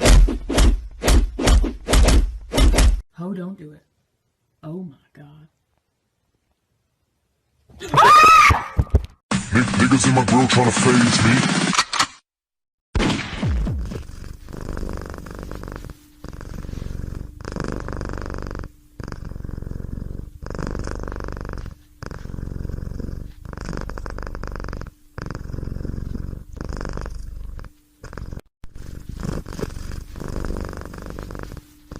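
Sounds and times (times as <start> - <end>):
cat purring: 13.7 - 31.9.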